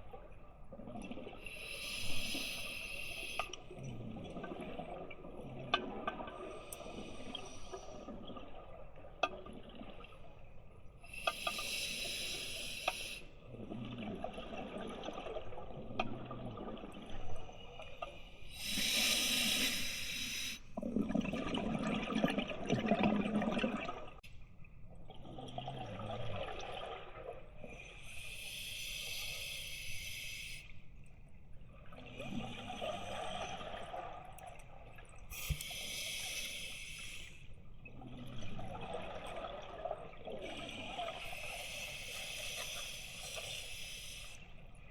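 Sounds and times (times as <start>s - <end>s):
regulator hissing inhale: 1.5s - 3.6s, 11.1s - 13.3s, 18.5s - 20.6s, 28.0s - 30.7s, 35.3s - 37.5s, 40.6s - 44.5s
exhaled bubbles rushing: 3.7s - 10.3s, 13.5s - 17.5s, 20.8s - 24.2s, 37.9s - 41.4s.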